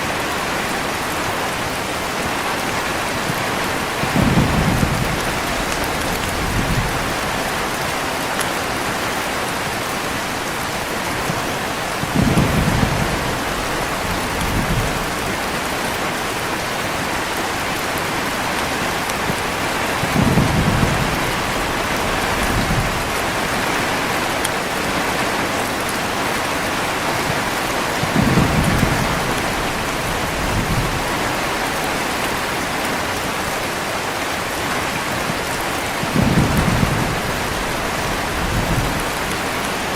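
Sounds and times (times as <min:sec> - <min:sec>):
heavy rain: 0:00.0 - 0:39.9
thunder rolling: 0:04.0 - 0:07.8, 0:12.0 - 0:15.9, 0:18.7 - 0:24.3, 0:28.0 - 0:31.6, 0:36.0 - 0:39.6.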